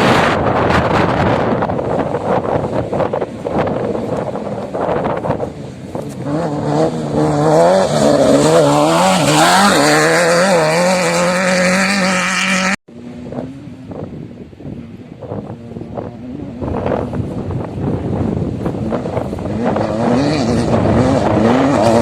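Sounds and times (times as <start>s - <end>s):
ground rumble: 0.0s - 22.0s
wind: 0.0s - 22.0s
vehicle engine revving hard: 6.2s - 13.4s, 18.7s - 22.0s.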